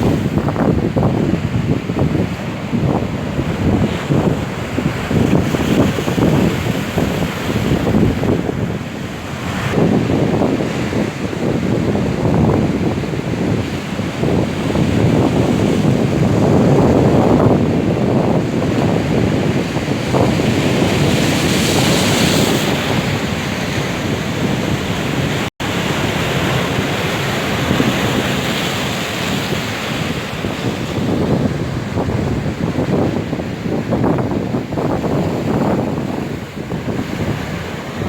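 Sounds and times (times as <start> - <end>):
storm surf breaking on beach: 0.0 - 38.0
wind buffeting microphone: 0.0 - 38.0.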